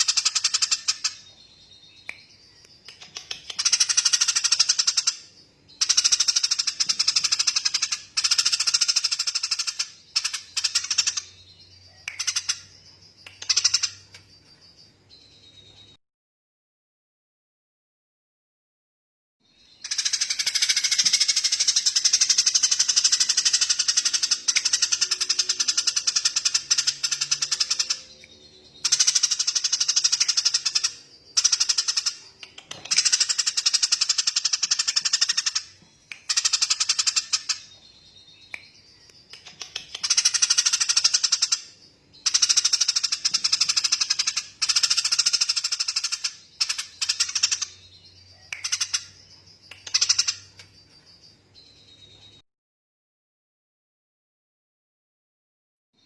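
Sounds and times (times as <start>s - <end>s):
bird rapid rattling trill: 19.8s - 28.0s, 28.8s - 35.7s, 39.4s - 47.8s.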